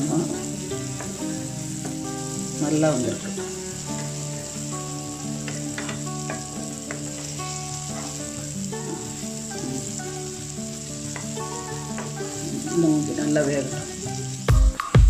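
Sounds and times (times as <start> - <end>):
food sizzling in oil: 0.0 - 15.0
metal spatula turning food: 5.4 - 10.4
music with heavy bass beats: 14.5 - 15.0.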